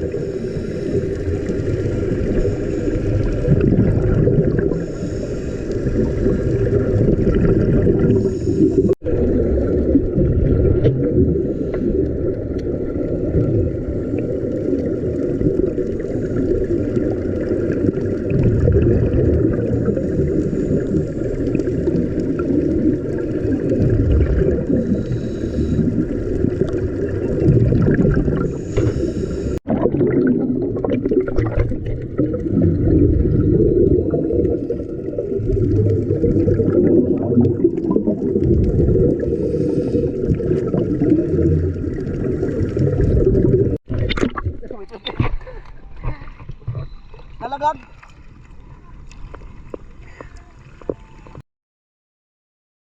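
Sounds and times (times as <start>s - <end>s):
muffled underwater rumble: 0.0s - 51.4s.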